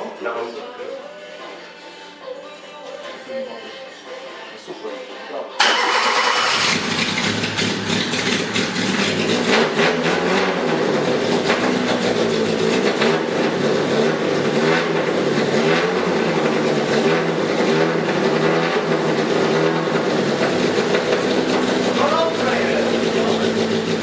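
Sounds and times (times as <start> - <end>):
car engine revving unevenly: 6.2 - 24.0.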